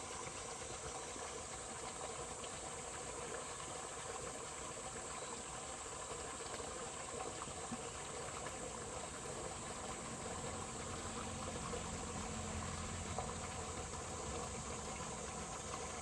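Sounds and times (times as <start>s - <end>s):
stream water flowing: 0.0s - 16.0s.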